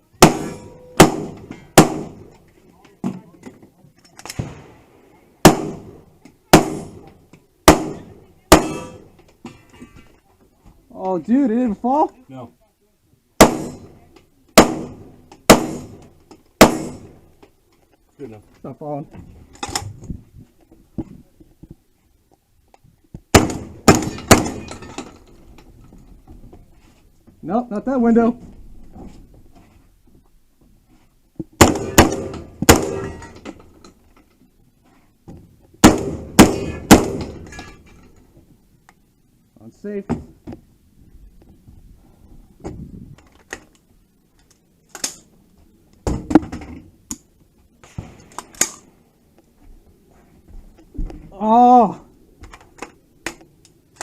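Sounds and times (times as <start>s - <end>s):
gunshots with ringing decay: 0.2s - 2.3s, 5.4s - 6.0s, 6.6s - 7.0s, 7.6s - 9.1s, 13.4s - 14.0s, 14.6s - 17.2s, 31.6s - 33.4s, 35.8s - 37.5s.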